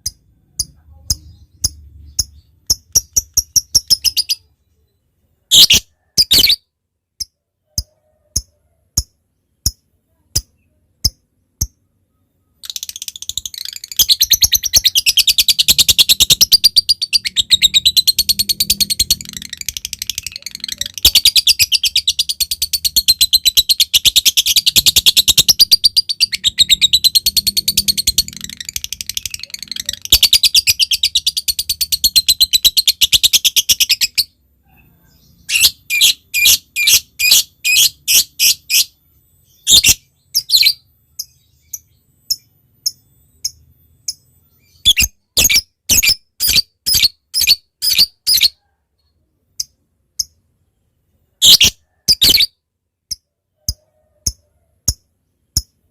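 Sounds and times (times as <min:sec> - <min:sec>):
lovebird chattering trill: 0:00.0 - 0:04.5, 0:12.4 - 0:34.4, 0:35.1 - 0:48.6, 0:51.4 - 0:52.6
lovebird sharp high chirps: 0:00.0 - 0:04.5, 0:05.5 - 0:06.6, 0:07.2 - 0:34.4, 0:35.1 - 0:48.6, 0:51.4 - 0:52.6.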